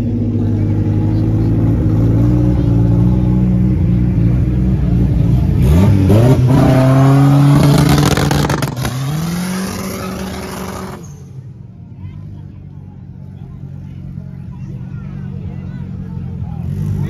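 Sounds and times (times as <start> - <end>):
drag car engine revving: 0.0 - 11.4, 15.2 - 17.0.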